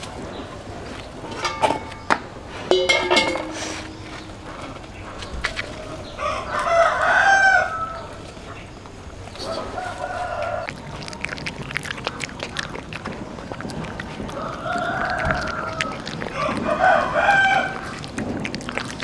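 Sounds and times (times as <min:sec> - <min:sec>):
rooster crowing: 0:06.1 - 0:08.2, 0:09.5 - 0:10.7, 0:14.4 - 0:17.8.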